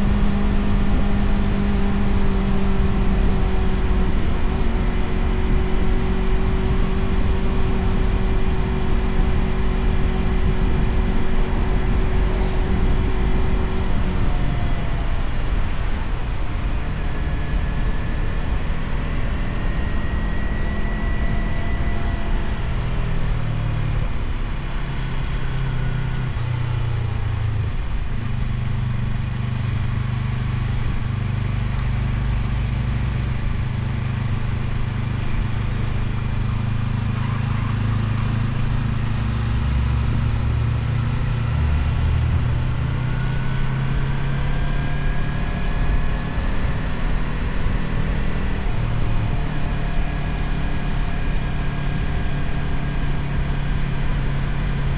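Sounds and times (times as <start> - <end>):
motorcycle engine running: 0.0 - 19.6, 20.2 - 54.9.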